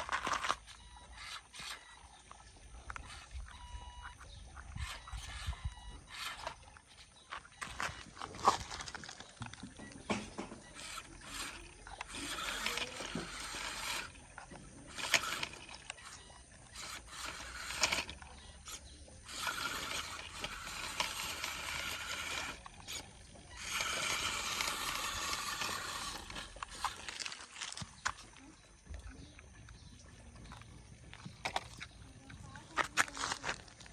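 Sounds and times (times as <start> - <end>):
toy motors and gears whirring: 0.0 - 33.9
sharp clicks and knocks: 7.3 - 29.8.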